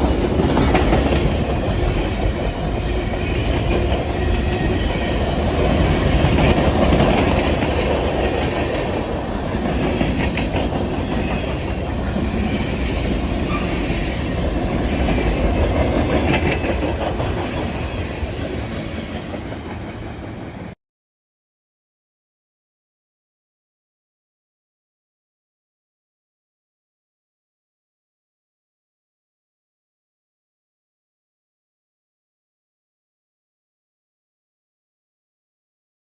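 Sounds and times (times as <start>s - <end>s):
train rumbling past: 0.0s - 20.8s.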